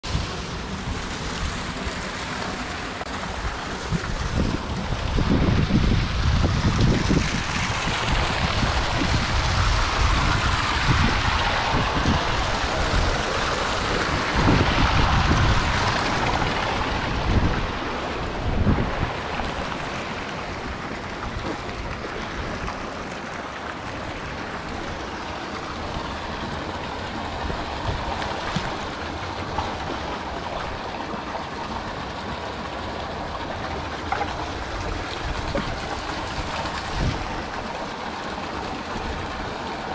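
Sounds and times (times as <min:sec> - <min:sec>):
wind buffeting microphone: 0:03.2 - 0:23.1, 0:33.1 - 0:37.9.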